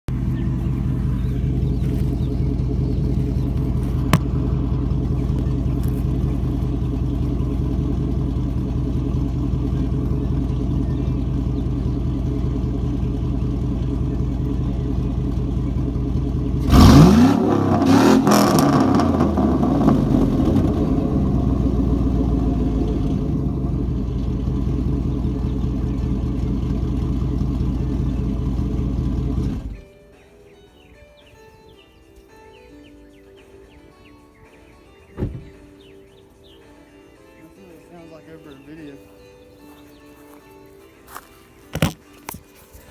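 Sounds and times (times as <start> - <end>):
engine idling: 0.1 - 29.8
engine revving: 0.1 - 29.8.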